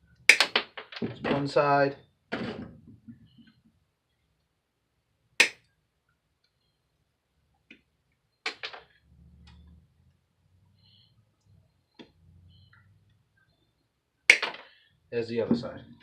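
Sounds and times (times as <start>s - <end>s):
wire snips snapping: 5.4s - 5.6s.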